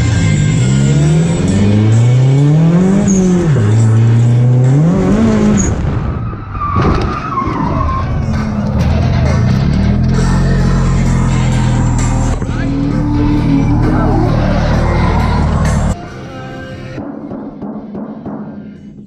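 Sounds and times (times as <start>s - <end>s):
tires squealing: 0.0s - 16.0s
car engine revving hard: 0.5s - 5.8s.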